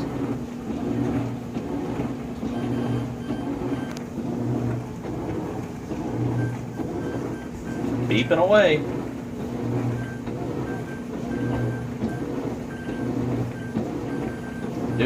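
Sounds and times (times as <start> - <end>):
washing machine motor humming: 0.0 - 15.0
washing machine short high beeps: 2.4 - 4.8, 6.0 - 15.0.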